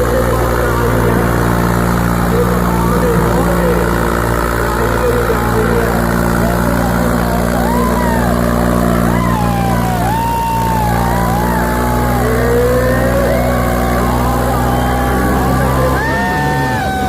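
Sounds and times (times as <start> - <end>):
tractor diesel engines running: 0.0 - 17.0.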